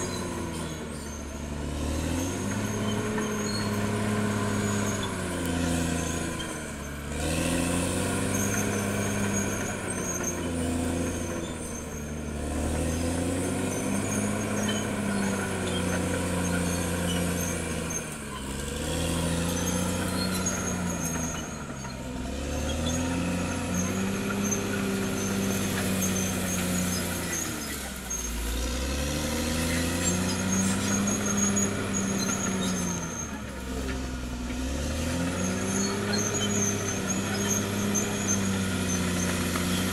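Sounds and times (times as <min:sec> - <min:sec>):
faint high squeaking: 0:00.0 - 0:07.1
bulldozer diesel engine: 0:00.0 - 0:39.9.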